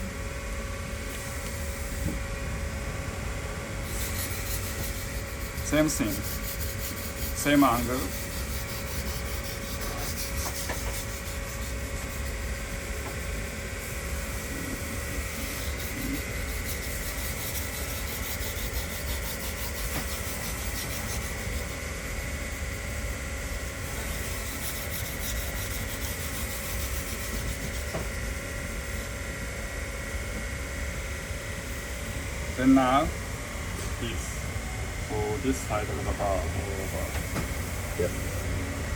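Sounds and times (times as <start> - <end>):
knife scraping on whetstone: 3.8 - 13.4, 14.3 - 21.9, 23.9 - 28.2.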